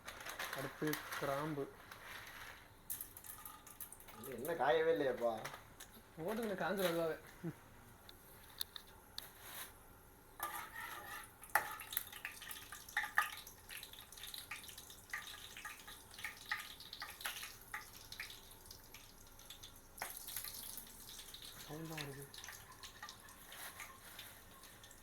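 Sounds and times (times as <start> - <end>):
spices sizzling in hot oil: 0.6 - 4.9, 10.4 - 25.0
oil popping: 11.4 - 25.0.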